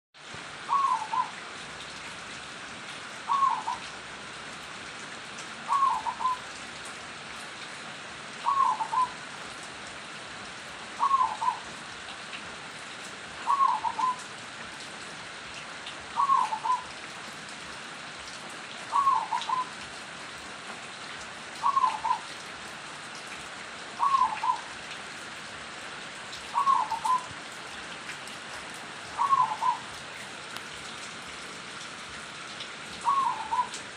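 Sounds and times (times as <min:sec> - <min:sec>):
steady background hiss: 0:00.2 - 0:33.9
dove cooing: 0:00.7 - 0:01.4, 0:03.3 - 0:03.9, 0:05.7 - 0:06.4, 0:08.4 - 0:09.2, 0:11.0 - 0:11.7, 0:13.4 - 0:14.3, 0:16.2 - 0:16.9, 0:18.9 - 0:19.8, 0:21.6 - 0:22.3, 0:24.0 - 0:24.7, 0:26.5 - 0:27.3, 0:29.0 - 0:30.0, 0:33.0 - 0:33.8.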